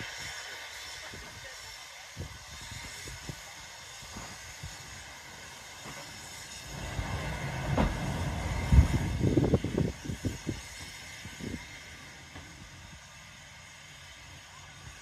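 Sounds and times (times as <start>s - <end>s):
railway carriages rolling: 0.0s - 15.0s
steady hiss: 0.0s - 15.0s
low rumble of vehicle: 5.3s - 15.0s
low knocks from wheels: 6.7s - 9.0s.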